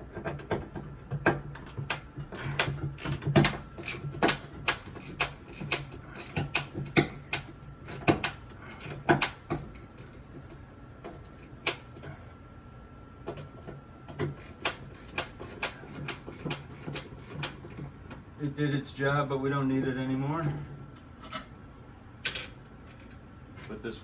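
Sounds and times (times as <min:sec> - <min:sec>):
screwdriver clicking: 0:01.6 - 0:10.2, 0:14.4 - 0:17.9.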